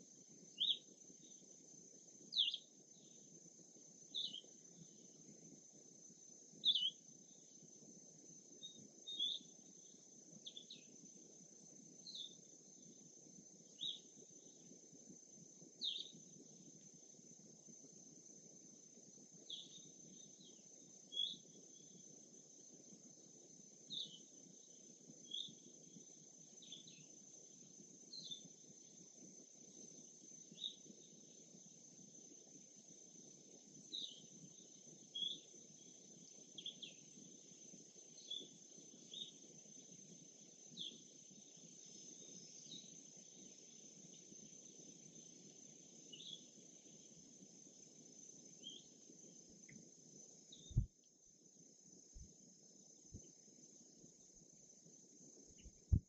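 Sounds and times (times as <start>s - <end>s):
high insect drone: 0.0s - 56.0s
bird chirping: 2.4s - 3.2s, 6.7s - 7.0s, 50.5s - 50.9s.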